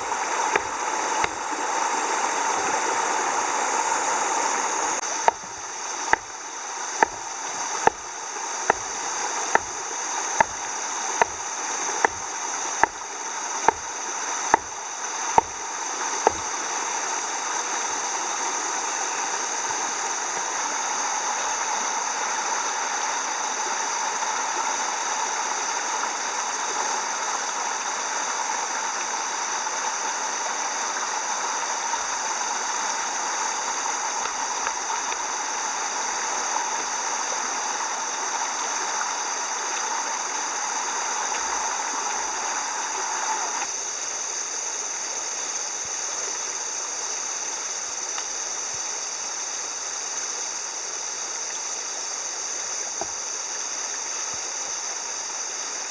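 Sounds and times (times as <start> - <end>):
sharp knocks: 7.0 - 8.1, 8.7 - 8.9, 9.5 - 9.8, 11.2 - 11.4, 12.0 - 13.0, 14.5 - 14.8, 15.4 - 15.6, 16.2 - 16.5.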